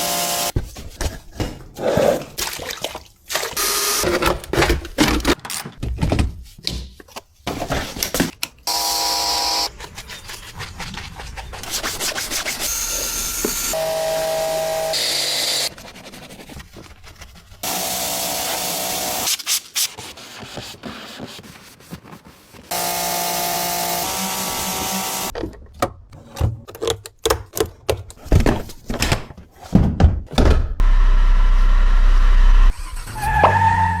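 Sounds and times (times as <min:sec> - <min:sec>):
power tool running: 0:00.0 - 0:00.5, 0:03.6 - 0:04.0, 0:08.7 - 0:09.7, 0:12.6 - 0:15.7, 0:17.6 - 0:19.3, 0:22.7 - 0:25.3.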